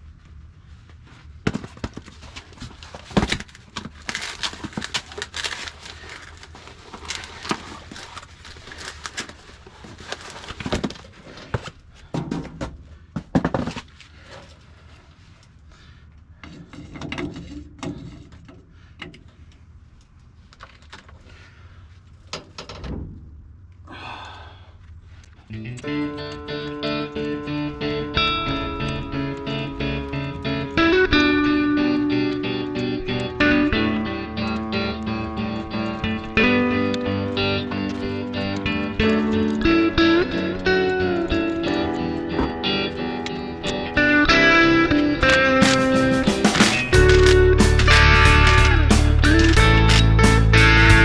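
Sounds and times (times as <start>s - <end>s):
metal parts and tools clanking: 16.4s - 19.4s, 45.2s - 50.2s.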